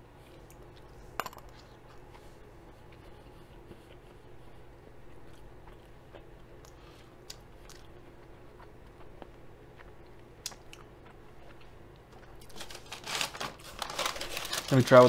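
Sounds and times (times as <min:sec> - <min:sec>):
person chewing food: 0:01.6 - 0:12.6.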